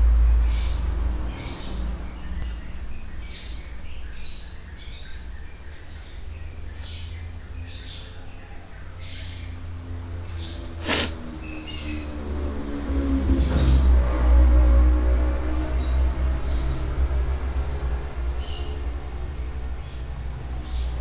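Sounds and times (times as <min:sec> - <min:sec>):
birds chirping: 0:00.0 - 0:14.0, 0:15.2 - 0:21.0.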